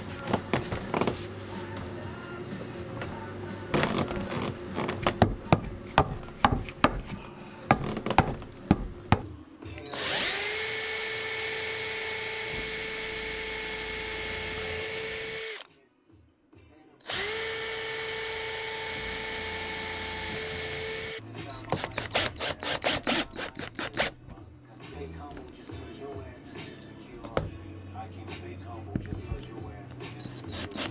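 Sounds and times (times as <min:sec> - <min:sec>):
power drill whining: 0:09.8 - 0:15.7, 0:17.1 - 0:24.2, 0:30.1 - 0:30.9.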